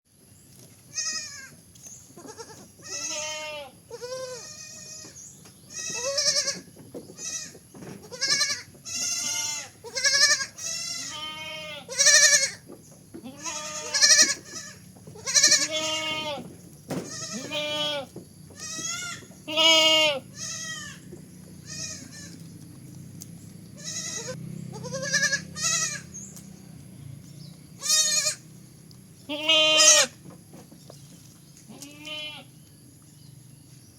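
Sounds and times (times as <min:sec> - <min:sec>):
young goat bleating: 0:00.9 - 0:12.6, 0:13.2 - 0:22.5, 0:23.8 - 0:26.3, 0:27.8 - 0:28.5, 0:29.2 - 0:30.2, 0:31.7 - 0:32.6.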